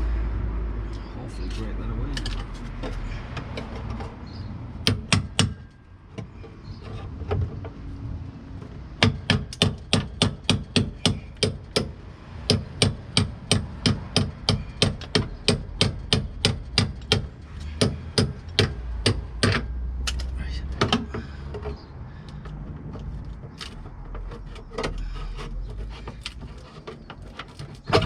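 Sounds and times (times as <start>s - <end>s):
hammer blows on car bodywork: 4.8s - 5.7s, 9.0s - 19.7s.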